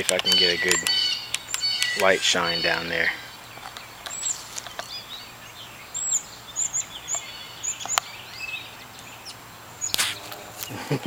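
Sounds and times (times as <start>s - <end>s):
small birds chirping: 0.0s - 11.0s
sharp click: 9.9s - 10.7s.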